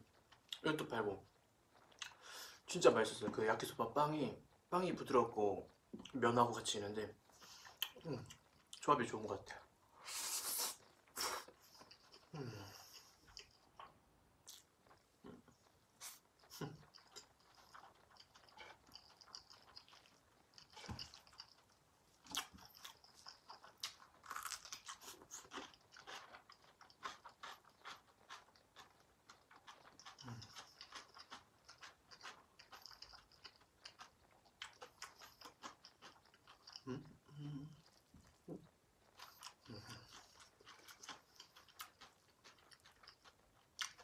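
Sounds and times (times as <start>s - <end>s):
crunchy chewing: 10.4s - 44.0s.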